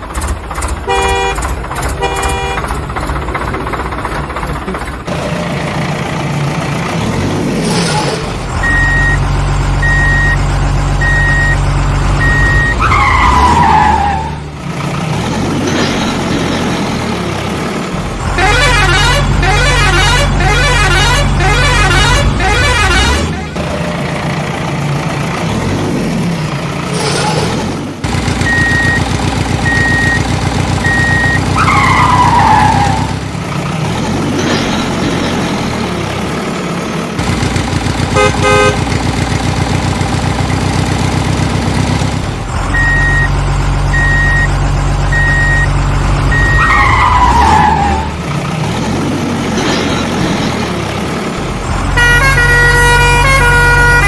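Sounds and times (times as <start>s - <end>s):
horn honks: 0.8s - 2.8s, 18.3s - 23.4s, 38.1s - 39.0s, 51.9s - 54.0s.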